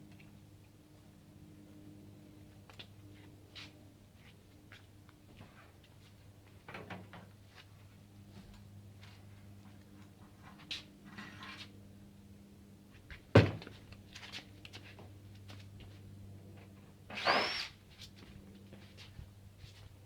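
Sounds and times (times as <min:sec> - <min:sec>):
scraping squeal: 0:17.1 - 0:17.7.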